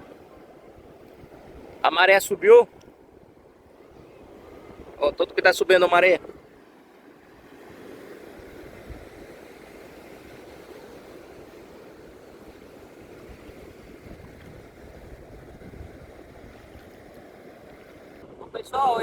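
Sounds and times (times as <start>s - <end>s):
sea surf washing: 0.0s - 19.0s
wind on microphone: 2.7s - 5.3s, 7.4s - 19.0s.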